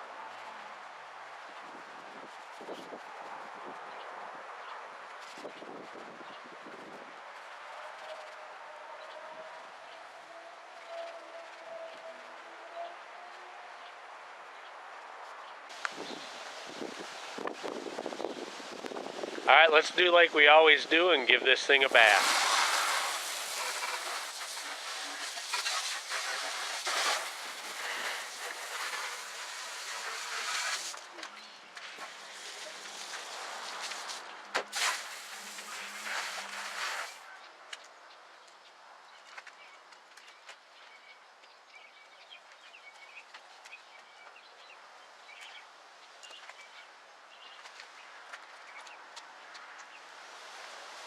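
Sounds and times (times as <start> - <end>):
water spray hissing on vehicle: 21.7 - 31.1, 31.8 - 37.2
small birds chirping: 37.3 - 50.1.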